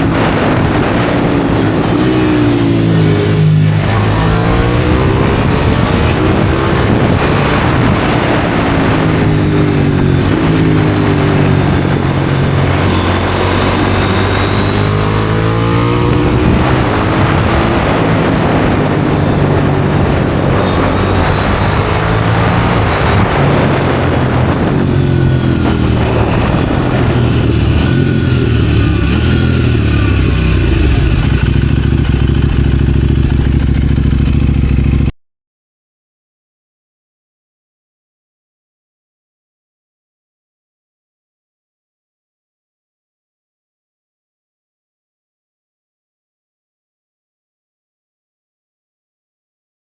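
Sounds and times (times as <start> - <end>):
wind rushing: 0.0 - 33.0
motorcycle engine accelerating: 0.0 - 35.1.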